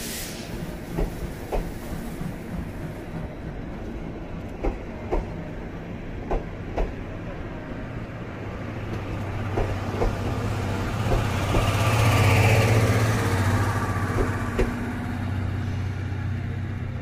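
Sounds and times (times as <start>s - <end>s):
hiss: 0.0s - 3.0s.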